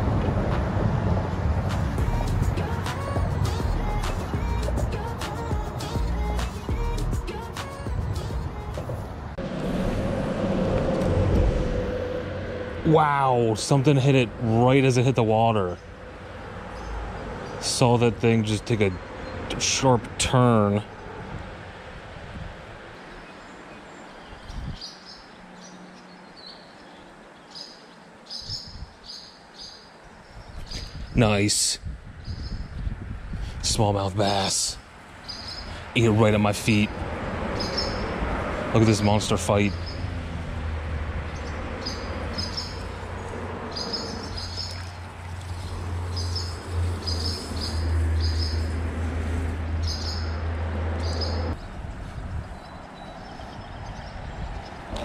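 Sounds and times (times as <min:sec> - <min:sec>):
low thumps: 0:08.7 - 0:12.8
small birds chirping: 0:22.9 - 0:31.5, 0:32.2 - 0:32.8, 0:34.3 - 0:36.1, 0:37.6 - 0:38.2, 0:39.0 - 0:40.1, 0:41.3 - 0:48.7, 0:49.7 - 0:50.4, 0:51.0 - 0:55.0.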